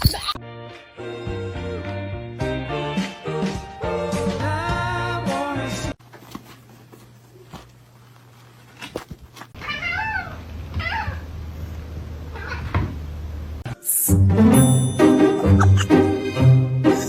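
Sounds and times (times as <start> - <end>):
cat meowing: 9.6 - 11.3, 12.3 - 12.8.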